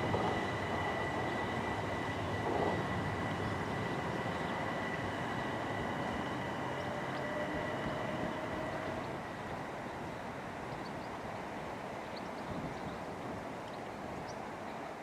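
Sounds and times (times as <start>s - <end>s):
faint rising tone: 0.0s - 9.4s
high whine tones: 0.0s - 9.7s
electric train running: 0.0s - 10.6s.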